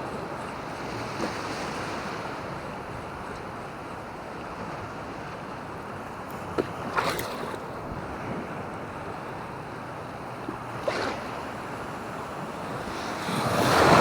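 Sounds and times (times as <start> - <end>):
surf washing on beach: 6.8 - 14.0.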